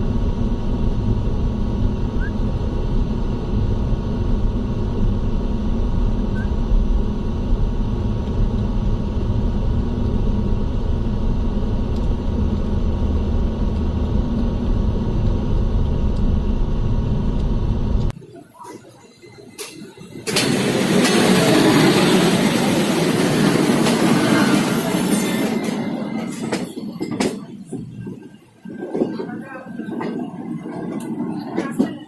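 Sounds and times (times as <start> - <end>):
faint steady whine: 0.0 - 21.1
passenger train rumbling: 0.0 - 32.0.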